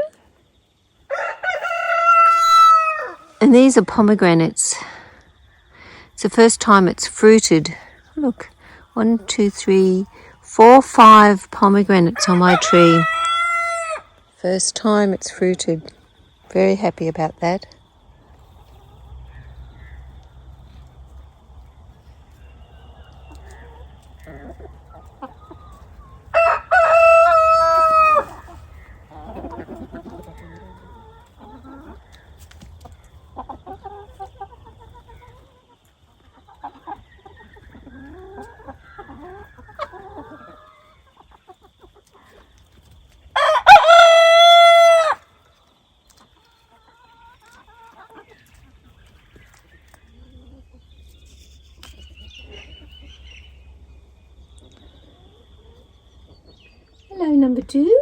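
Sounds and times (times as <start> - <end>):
rooster crowing: 1.1 - 3.4, 12.3 - 14.2, 26.3 - 28.4, 43.4 - 45.3
hens clucking softly: 17.7 - 58.0.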